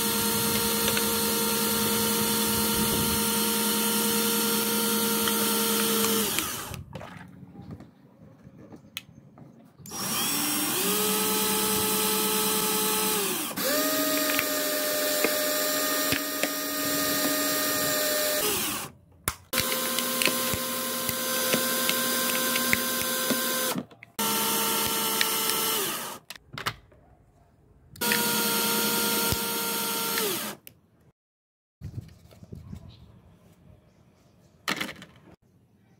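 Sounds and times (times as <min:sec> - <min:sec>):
electric pump motor whining: 0:00.0 - 0:06.8, 0:09.9 - 0:26.4, 0:28.0 - 0:30.6.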